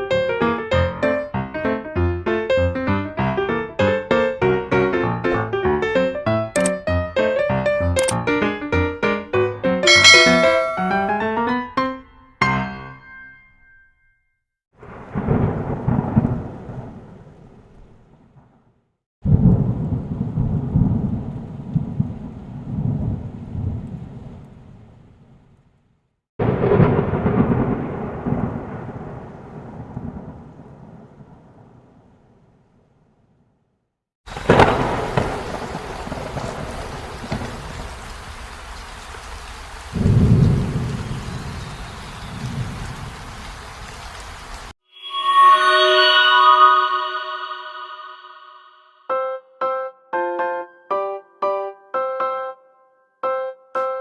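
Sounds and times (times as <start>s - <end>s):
steady rain: 14.8s - 18.4s, 19.3s - 25.4s, 26.4s - 32.4s, 34.3s - 44.8s
thunder claps rumbling: 14.8s - 18.6s, 19.2s - 25.0s, 26.4s - 32.6s, 34.3s - 38.0s, 39.9s - 43.6s.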